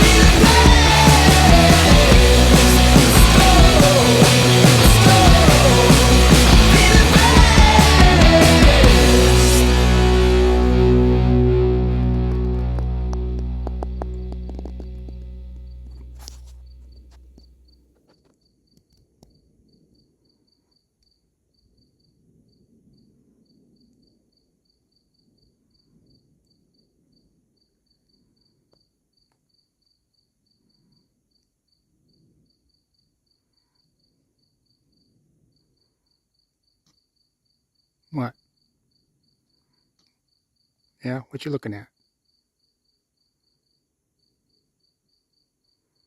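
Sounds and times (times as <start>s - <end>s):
insect chirping: 41.9s - 46.0s.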